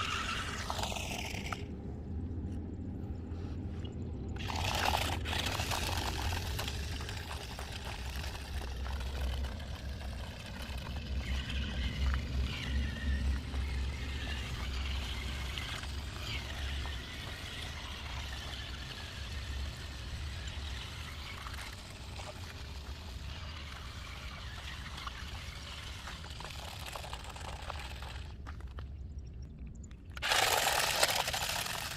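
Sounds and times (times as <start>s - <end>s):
low engine rumble: 0.0s - 30.4s
water rushing and pouring: 4.4s - 28.4s.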